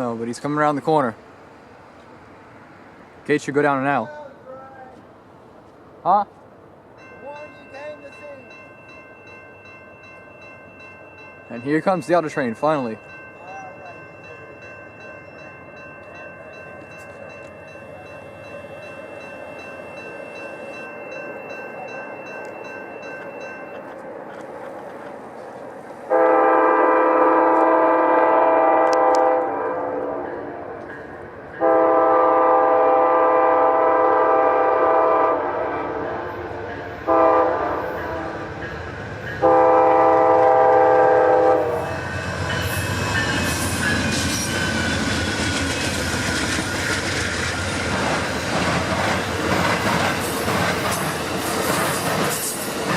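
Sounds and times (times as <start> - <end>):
crossing bell ringing: 6.9 - 24.9, 30.1 - 35.3, 36.1 - 50.5
train wheels clicking on rails: 14.9 - 26.2, 36.4 - 52.9
train horn blasts: 26.1 - 30.7, 31.6 - 38.5, 39.4 - 42.0.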